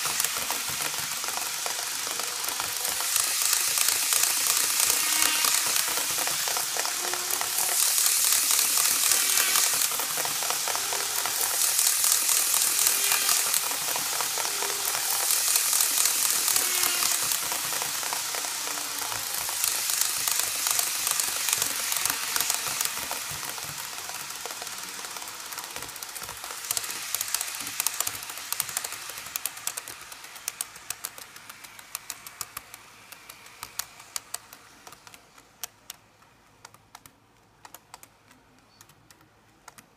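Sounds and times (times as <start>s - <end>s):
model train wheels clattering: 0.0s - 39.9s.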